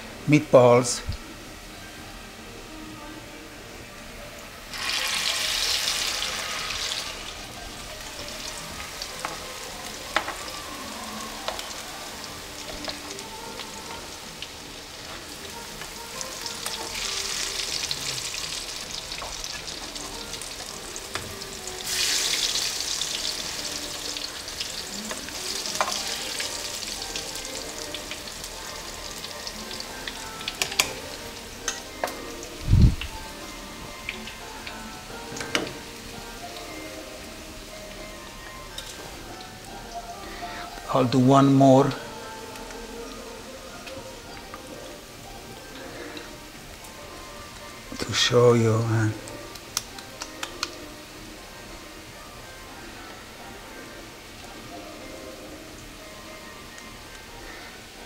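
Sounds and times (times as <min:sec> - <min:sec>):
food sizzling in oil: 0:03.7 - 0:58.0
utensil clicking on pan: 0:30.5 - 0:31.0, 0:49.5 - 0:50.8.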